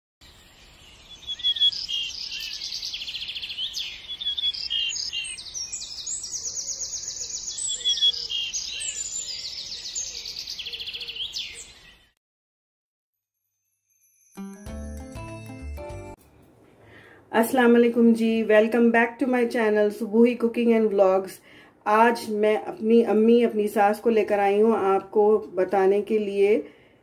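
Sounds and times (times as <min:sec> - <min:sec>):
songbirds trilling and chirping: 0:00.2 - 0:12.2.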